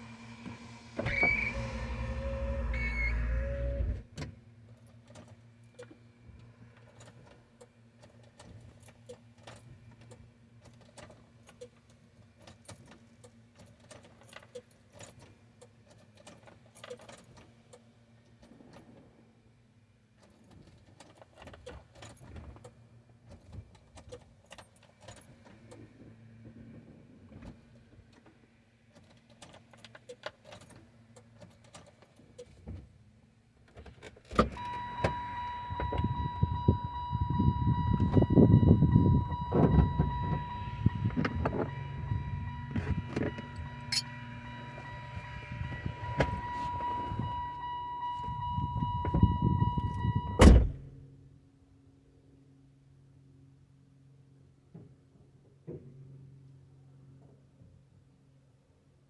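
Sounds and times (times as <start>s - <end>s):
car engine cranking: 0.0s - 4.2s, 34.4s - 47.6s
high-pitched tone: 34.6s - 48.7s.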